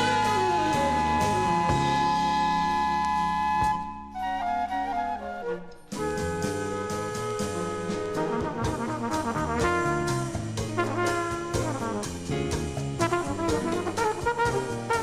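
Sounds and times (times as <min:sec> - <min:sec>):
big band brass section: 0:00.0 - 0:03.0, 0:06.1 - 0:15.0
drums: 0:00.0 - 0:15.0.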